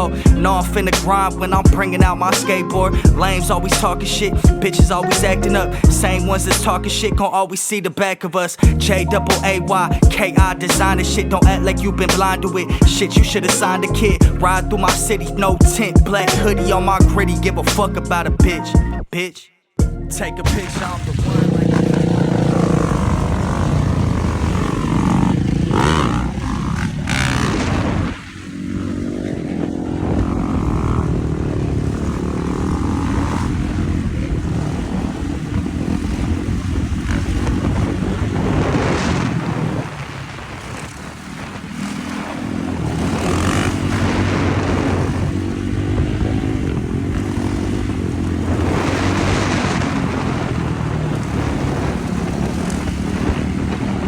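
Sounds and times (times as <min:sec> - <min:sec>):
wind noise on microphone: 0:00.0 - 0:07.2, 0:19.8 - 0:54.0
dirt bike engine: 0:00.0 - 0:07.3, 0:08.6 - 0:18.6, 0:20.4 - 0:54.0.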